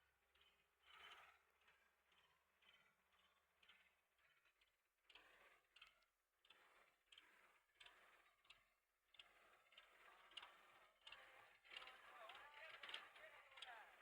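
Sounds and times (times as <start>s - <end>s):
faint ticks: 5.1s - 13.0s.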